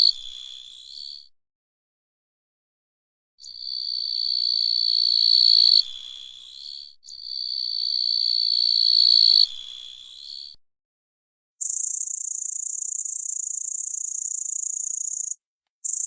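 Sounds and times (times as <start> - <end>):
grasshopper stridulating: 11.6 - 16.0.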